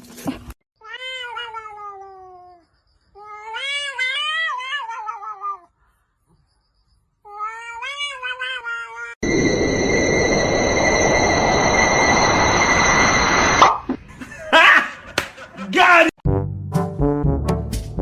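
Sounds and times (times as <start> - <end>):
cat yowling: 0.8 - 2.6, 3.2 - 5.7, 7.3 - 9.2.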